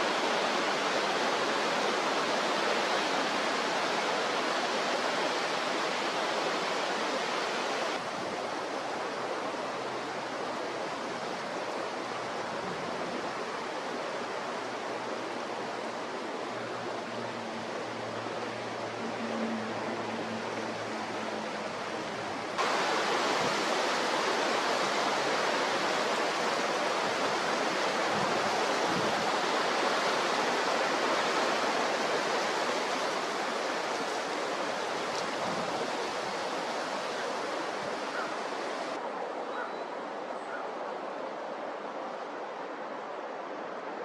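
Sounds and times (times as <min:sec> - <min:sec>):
strong wind blowing: 0:20.6 - 0:39.4.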